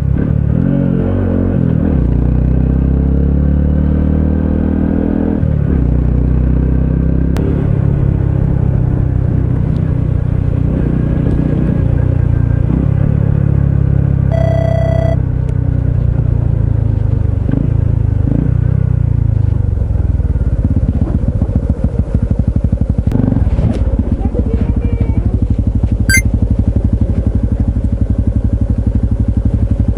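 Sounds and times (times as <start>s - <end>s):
high ringing beep: 14.3s - 15.2s.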